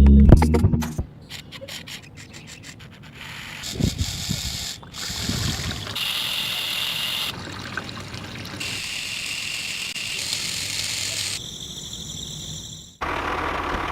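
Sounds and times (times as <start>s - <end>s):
water trickling and pouring: 4.9s - 6.1s, 7.1s - 8.8s.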